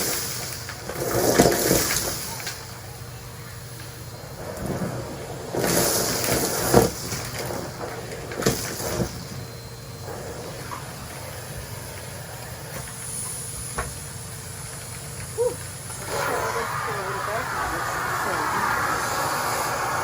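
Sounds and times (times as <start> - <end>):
sharp clicks of debris: 0.0 - 2.6
vacuum cleaner suction hiss: 0.0 - 20.0.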